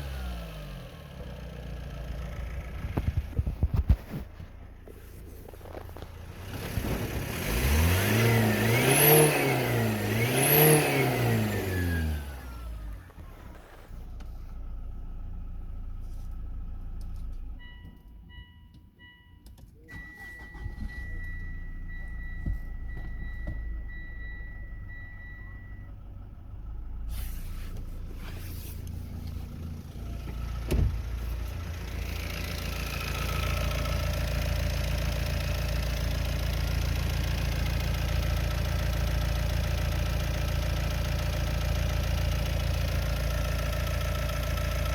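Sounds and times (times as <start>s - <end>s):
diesel engine idling: 0.0s - 8.0s, 19.9s - 44.9s
dashboard warning chime beeping: 17.5s - 26.0s
thump: 30.3s - 31.1s.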